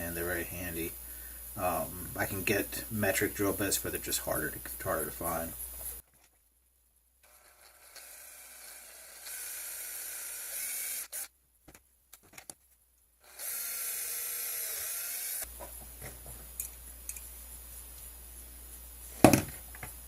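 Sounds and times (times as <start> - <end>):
small power drill drilling metal: 7.2 - 11.3, 13.2 - 15.5.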